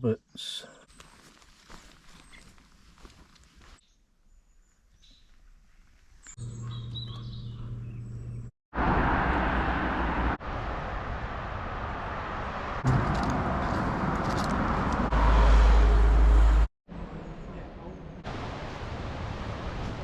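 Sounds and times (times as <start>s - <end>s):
birds chirping: 6.2s - 8.5s
road and engine noise of moving car: 8.3s - 17.6s.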